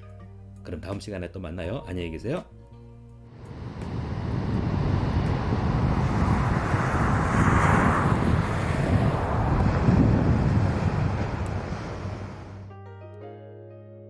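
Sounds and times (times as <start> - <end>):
rushing swell: 3.3 - 12.7
wind buffeting microphone: 3.4 - 12.7.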